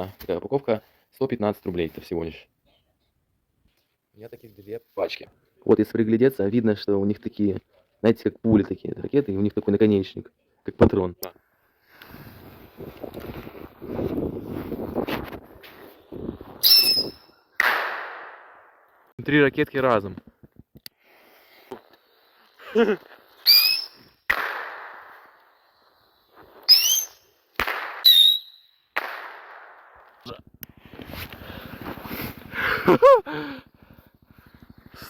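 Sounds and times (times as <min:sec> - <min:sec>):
wind buffeting microphone: 0:12.6 - 0:16.6
rocket rising whistle: 0:16.6 - 0:17.4, 0:23.4 - 0:24.2, 0:26.6 - 0:27.3, 0:28.0 - 0:28.8
firework bang with echo: 0:24.3 - 0:25.3, 0:27.6 - 0:28.1, 0:29.0 - 0:30.0.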